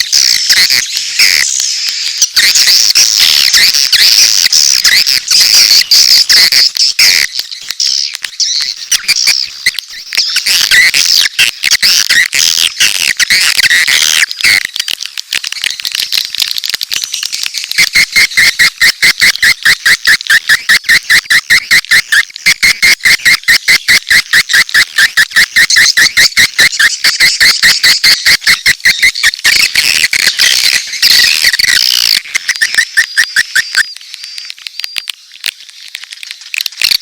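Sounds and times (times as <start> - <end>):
fast chirping clicks: 0.0 - 37.0
swiftlets twittering: 17.0 - 35.1.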